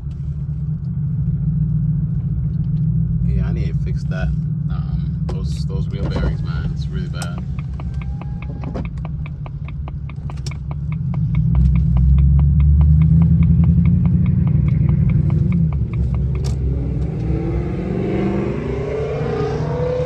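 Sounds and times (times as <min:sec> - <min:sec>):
car engine accelerating: 0:00.0 - 0:20.0
road noise: 0:00.0 - 0:20.0
rapid ticking: 0:07.2 - 0:16.4.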